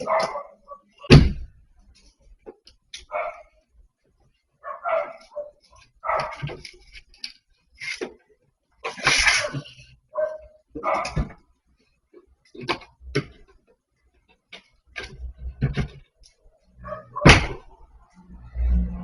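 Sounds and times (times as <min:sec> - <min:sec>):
dog barking: 0:00.0 - 0:01.1, 0:03.1 - 0:03.6, 0:04.6 - 0:06.5, 0:09.3 - 0:11.3, 0:16.8 - 0:17.4
loud thump: 0:17.3 - 0:17.7.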